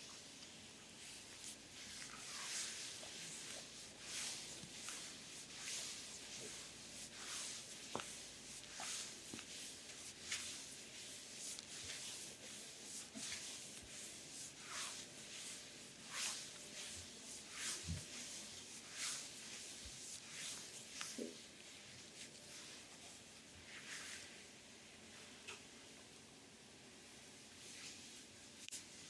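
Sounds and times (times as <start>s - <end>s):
hands rubbing oiled skin: 0.9s - 22.9s.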